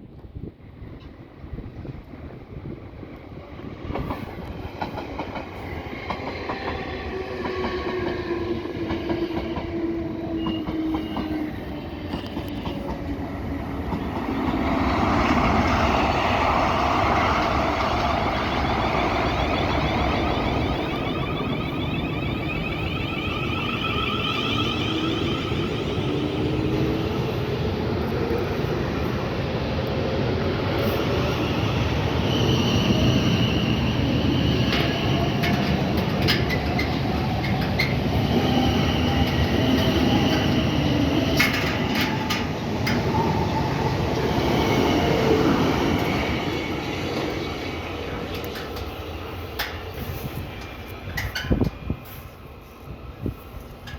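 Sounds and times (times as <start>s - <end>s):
electric train rumbling: 0.0s - 53.9s
wavering whining tones: 13.5s - 27.4s.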